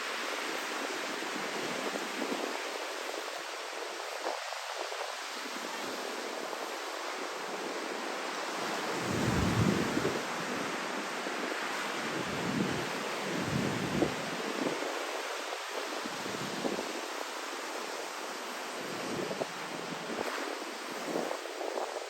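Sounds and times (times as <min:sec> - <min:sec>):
surf: 0:00.0 - 0:22.0
wind buffeting microphone: 0:08.9 - 0:10.4, 0:12.1 - 0:15.0
wind rushing: 0:09.0 - 0:10.2.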